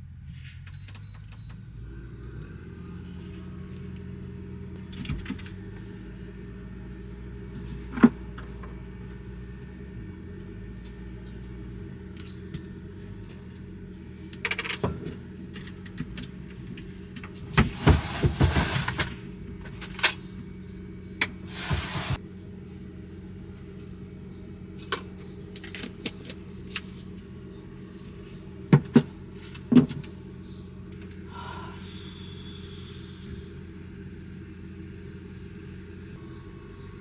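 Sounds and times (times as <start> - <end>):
low hum: 0.0 - 37.0
thin high whine: 0.4 - 37.0
objects knocking and clattering: 28.7 - 30.1.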